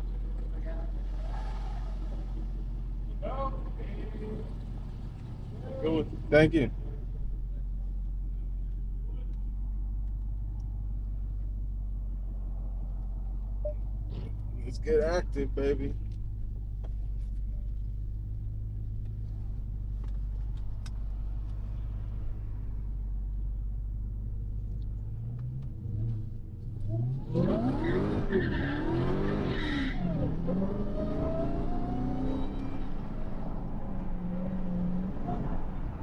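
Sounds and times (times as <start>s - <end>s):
car engine idling: 0.0s - 27.2s
car engine revving and accelerating: 25.0s - 36.0s.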